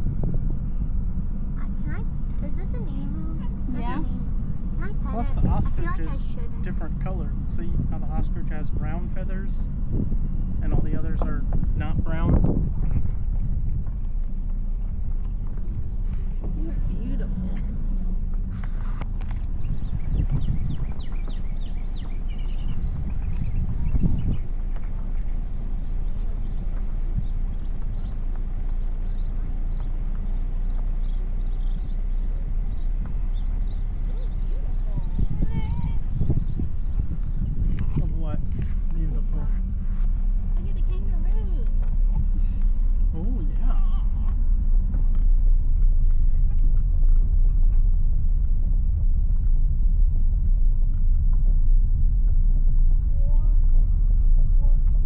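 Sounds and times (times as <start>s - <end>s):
steady low rumble: 0.0s - 55.0s
small birds chirping: 17.1s - 47.4s.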